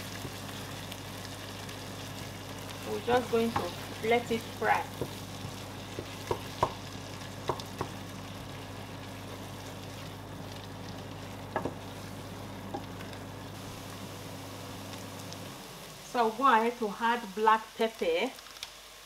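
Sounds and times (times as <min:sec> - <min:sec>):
food sizzling in oil: 0:00.0 - 0:19.0
wooden spatula knocking on pot: 0:04.9 - 0:08.0, 0:11.5 - 0:11.9.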